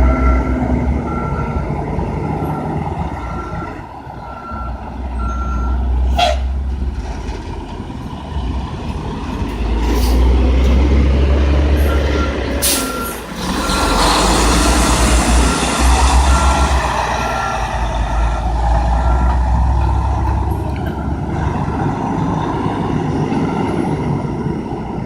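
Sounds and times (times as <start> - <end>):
reversing alarm beeping: 0.0 - 1.6, 11.8 - 19.5
diesel truck engines running: 0.0 - 25.0.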